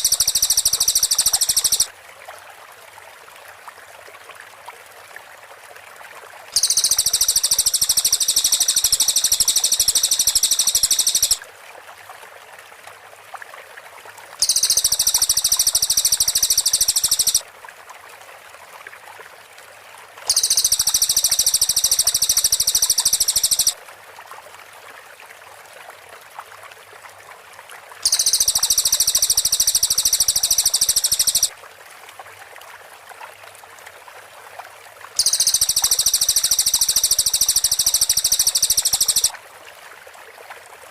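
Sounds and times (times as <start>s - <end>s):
bird singing rapid high notes: 0.0s - 1.9s, 6.6s - 11.4s, 14.4s - 17.4s, 20.3s - 23.8s, 28.1s - 31.5s, 35.2s - 39.3s
faint steady hiss: 0.0s - 2.4s, 5.8s - 11.8s, 14.1s - 17.4s, 19.7s - 24.4s, 27.3s - 40.9s.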